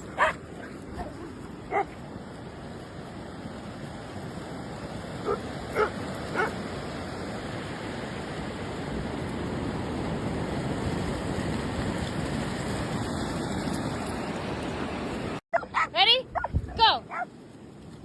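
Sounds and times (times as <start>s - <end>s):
dog barking: 0.2s - 0.4s, 1.7s - 1.9s, 5.2s - 6.6s, 15.5s - 17.3s.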